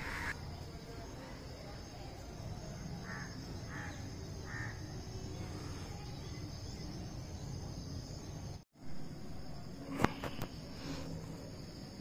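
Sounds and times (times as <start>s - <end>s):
bird calling: 0.0s - 0.4s.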